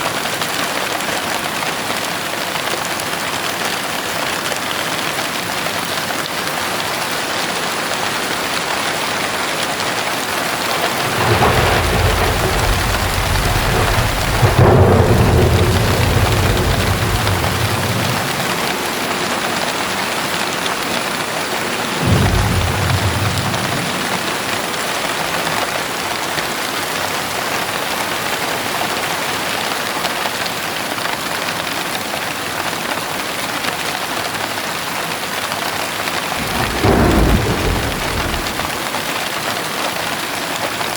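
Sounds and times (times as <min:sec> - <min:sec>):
heavy rain: 0:00.0 - 0:40.9
thunder rumbling: 0:09.3 - 0:26.0, 0:36.3 - 0:39.1.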